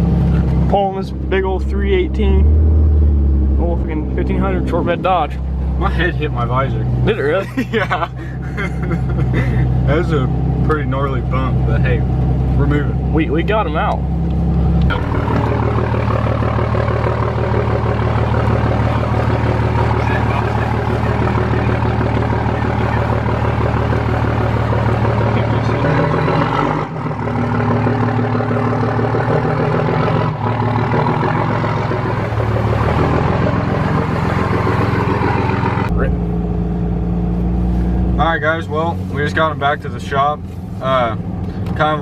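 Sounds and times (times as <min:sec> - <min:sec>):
diesel pickup engine running: 0:00.0 - 0:42.0.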